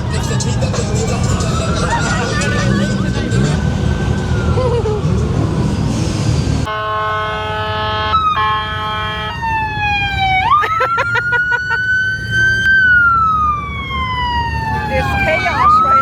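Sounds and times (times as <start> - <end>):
police siren wailing and yelping: 0.0 - 5.8, 9.3 - 16.0.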